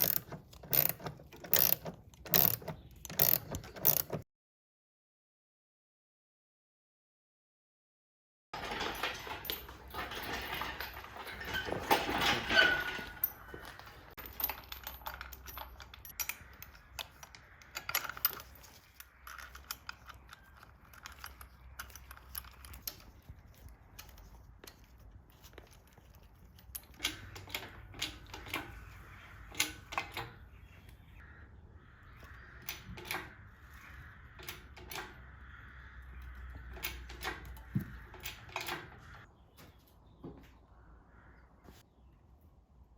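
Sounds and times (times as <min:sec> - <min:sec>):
metallic clicks of hand tools: 0:00.0 - 0:04.2
metal clattering: 0:08.6 - 0:20.0.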